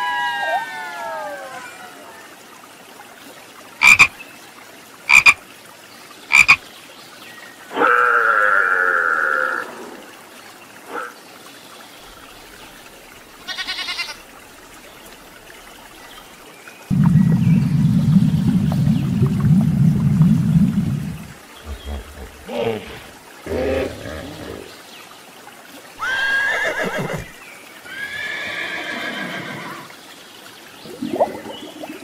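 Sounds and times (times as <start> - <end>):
frog croaking: 3.8 - 4.2, 5.1 - 5.4, 6.3 - 6.6
low steady rumble: 16.9 - 22.4.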